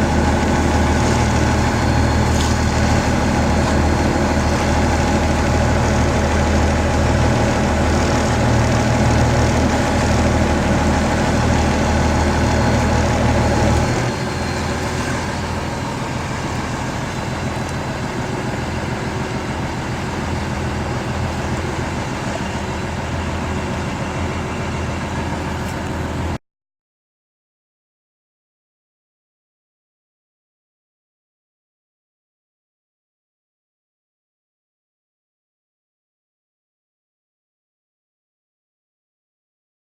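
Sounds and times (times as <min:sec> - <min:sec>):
boat engine running: 0:00.0 - 0:26.4.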